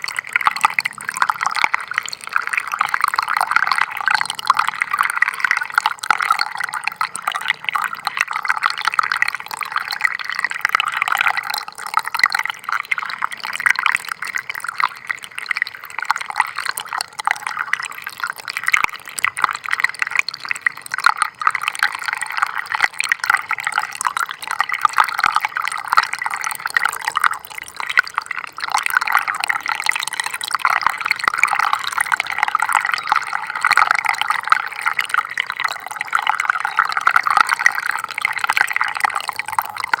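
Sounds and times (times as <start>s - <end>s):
stream water trickling: 0.0s - 40.0s.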